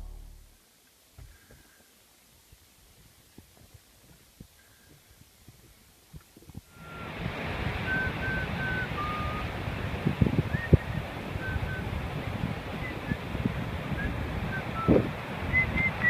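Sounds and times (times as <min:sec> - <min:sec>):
low thumps: 0:00.0 - 0:00.6
wind noise: 0:05.4 - 0:16.0
ocean surf: 0:06.7 - 0:16.0.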